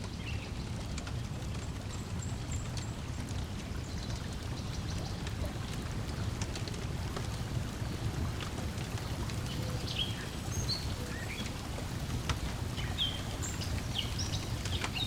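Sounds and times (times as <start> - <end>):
wood fire crackling: 0.0 - 15.0
lake water lapping on shore: 3.3 - 15.0.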